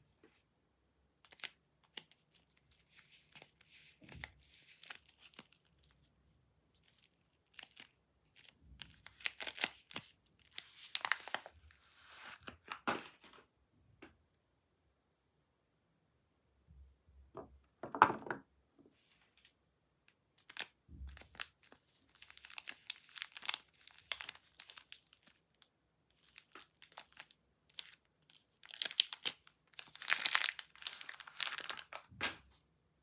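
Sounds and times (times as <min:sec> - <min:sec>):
soap wrapper crinkling and tearing: 0:01.2 - 0:06.1, 0:06.7 - 0:12.8, 0:20.4 - 0:32.1.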